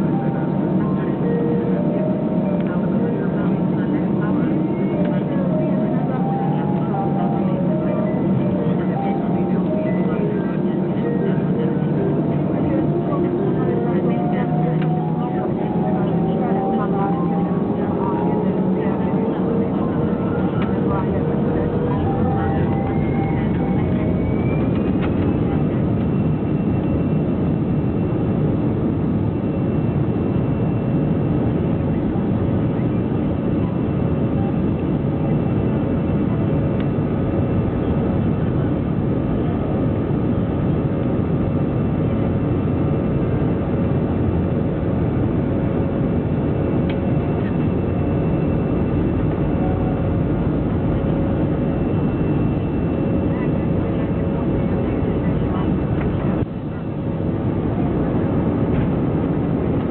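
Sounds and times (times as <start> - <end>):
jet engines at takeoff thrust: 0.0 - 59.9.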